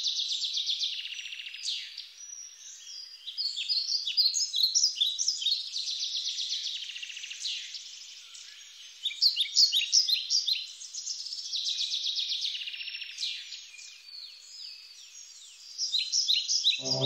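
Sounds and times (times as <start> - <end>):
low droning chant: 16.8 - 17.0.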